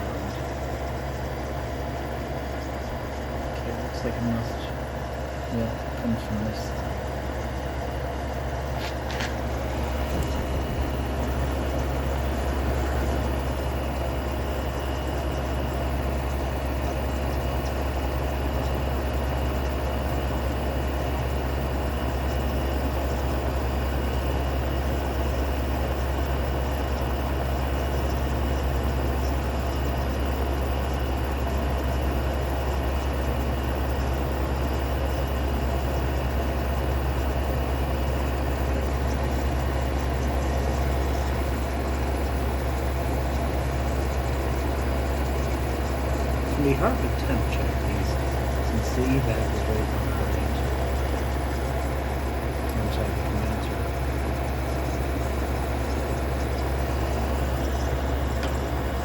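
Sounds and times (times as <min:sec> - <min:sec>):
fan rushing: 0:00.0 - 0:24.1, 0:40.7 - 0:59.0
compressor low hum: 0:00.0 - 0:59.0.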